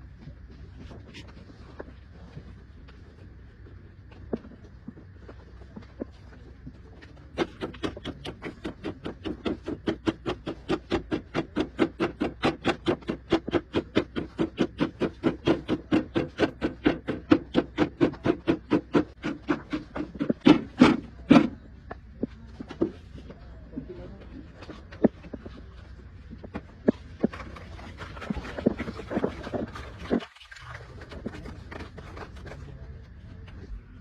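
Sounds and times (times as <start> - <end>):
rapid even knocking: 7.4 - 21.6.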